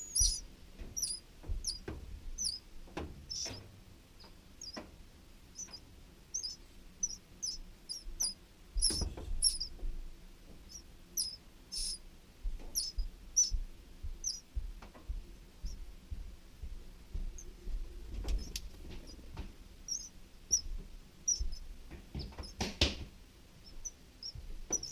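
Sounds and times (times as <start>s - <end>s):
high bird chirps: 0.0s - 0.4s, 1.0s - 1.8s, 2.4s - 2.6s, 3.3s - 3.6s, 4.2s - 4.8s, 5.5s - 9.8s, 10.7s - 12.0s, 12.7s - 13.6s, 14.2s - 14.4s, 19.9s - 20.7s, 21.3s - 21.6s, 23.6s - 24.9s
rustling knocks: 8.8s - 10.6s.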